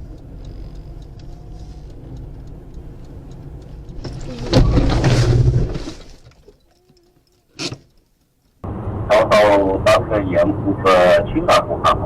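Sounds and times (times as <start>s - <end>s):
faint ticking: 0.0s - 4.4s
car cabin rumble: 0.0s - 6.6s.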